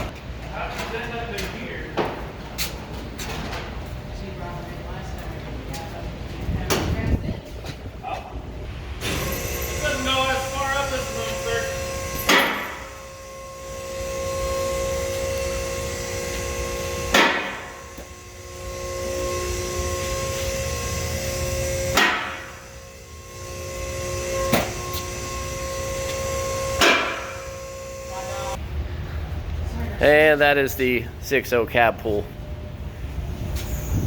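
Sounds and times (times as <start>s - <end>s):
mechanical hum with held tones: 0.0s - 34.0s
sharp knocks: 17.1s - 17.7s, 26.8s - 27.4s.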